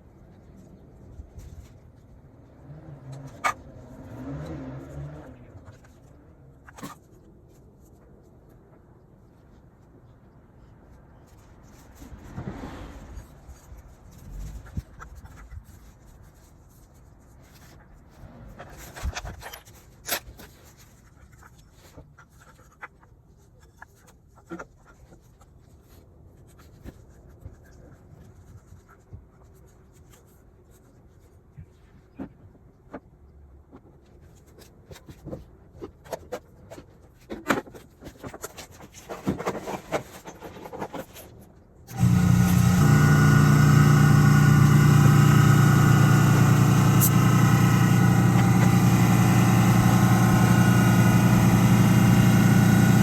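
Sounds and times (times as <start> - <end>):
scooter engine idling: 41.9 - 53.0.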